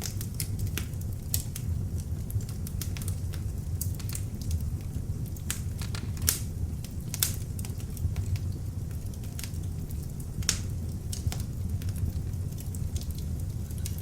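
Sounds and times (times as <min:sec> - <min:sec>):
fire crackles and pops: 0:00.0 - 0:14.0
log fire rumbling: 0:00.0 - 0:14.0.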